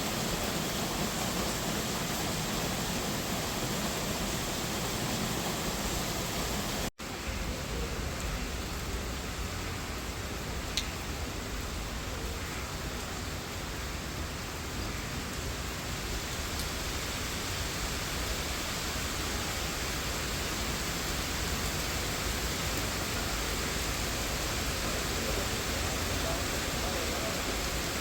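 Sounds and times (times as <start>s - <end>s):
rain falling on leaves: 0.0s - 28.0s.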